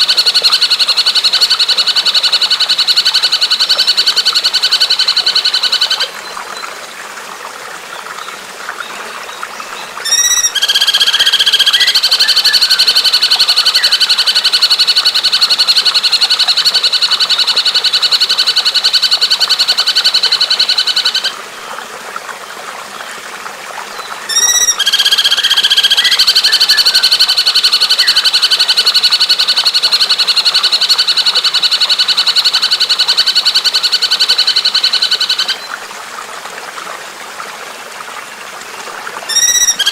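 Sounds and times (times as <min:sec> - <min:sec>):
recorded bird call: 0:09.8 - 0:21.4, 0:24.0 - 0:35.7, 0:39.3 - 0:39.9.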